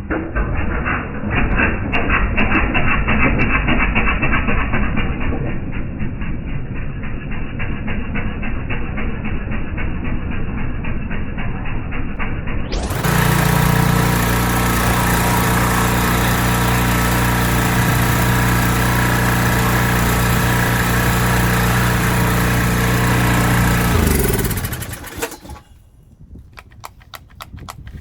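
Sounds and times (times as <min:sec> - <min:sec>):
pressure washer engine running: 0:12.7 - 0:25.7.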